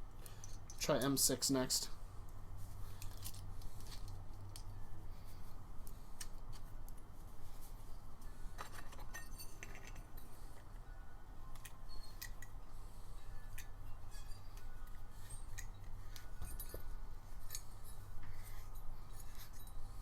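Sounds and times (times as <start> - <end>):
low steady hum: 0.0 - 20.0
metal tools clicking and clinking: 8.6 - 10.3, 13.5 - 19.8.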